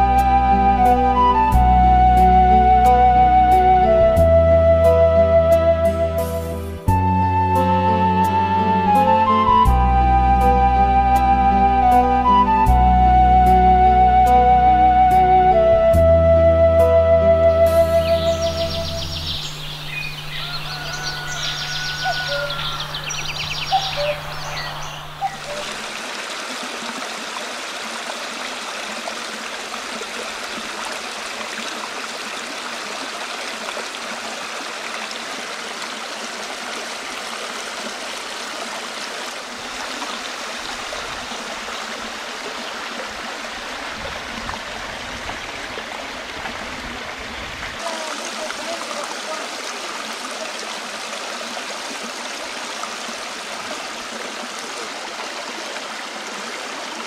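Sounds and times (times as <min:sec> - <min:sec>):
river water rushing: 0:17.7 - 0:57.0.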